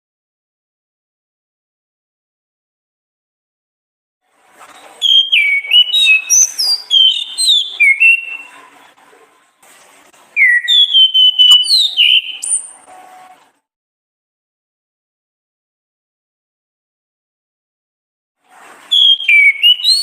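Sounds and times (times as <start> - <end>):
thrush singing whistled notes: 5.0 - 8.6, 10.4 - 13.0, 18.9 - 20.0.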